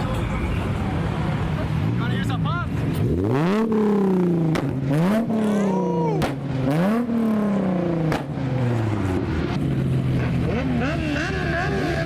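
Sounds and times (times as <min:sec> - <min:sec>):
car engine revving: 0:00.6 - 0:12.0
exhaust pops: 0:08.0 - 0:08.4.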